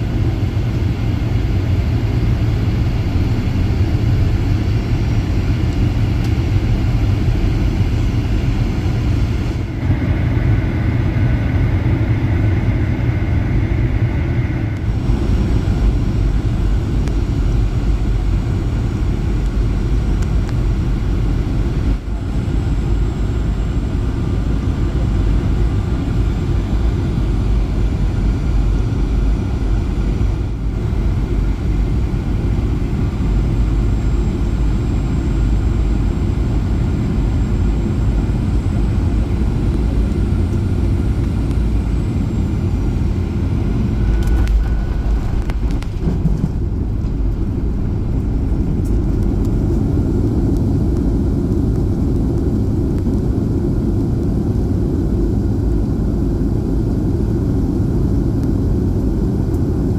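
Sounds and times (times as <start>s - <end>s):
aircraft cabin engine rumble: 0.0s - 59.9s.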